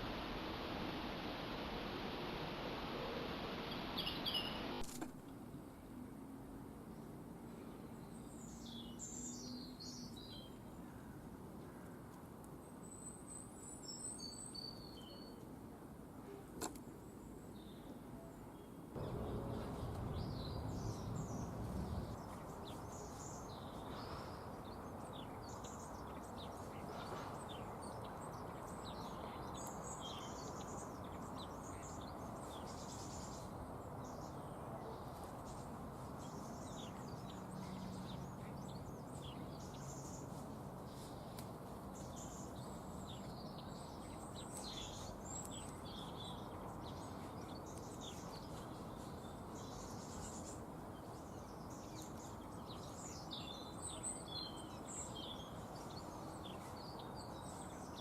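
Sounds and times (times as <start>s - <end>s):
low rumble: 0.0s - 4.8s, 19.0s - 23.0s
small birds chirping: 0.0s - 5.0s, 18.6s - 58.0s
steady background hum: 0.0s - 5.0s, 19.0s - 25.0s.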